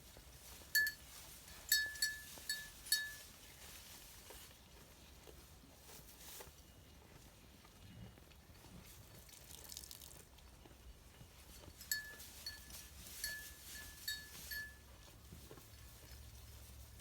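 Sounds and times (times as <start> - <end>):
sheep bell ringing: 0.5 - 3.6, 11.4 - 17.0
faint rustling: 11.4 - 17.0.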